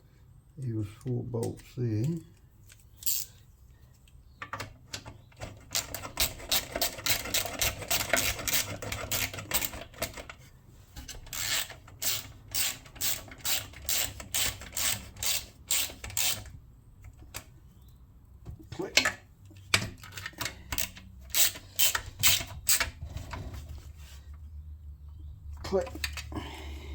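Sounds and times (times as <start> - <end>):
ratchet wrench clicking: 3.0 - 3.3, 11.3 - 16.5, 20.2 - 22.9.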